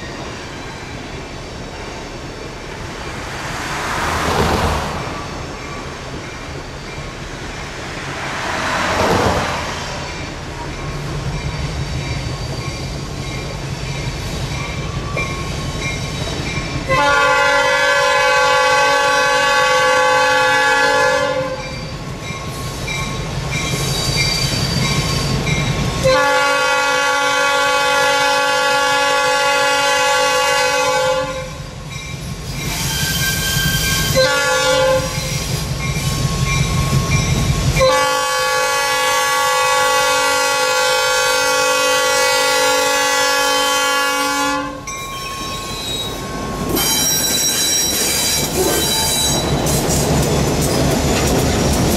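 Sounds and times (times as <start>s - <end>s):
brief rushing swell: 2.7s - 6.0s
diesel locomotive horn: 16.8s - 21.8s, 26.0s - 31.8s, 33.2s - 35.4s, 37.7s - 46.2s.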